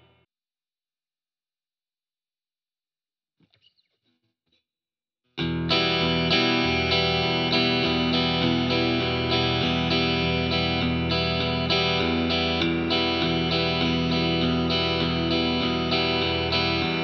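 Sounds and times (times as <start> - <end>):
electric guitar strumming chords: 5.4 - 17.0.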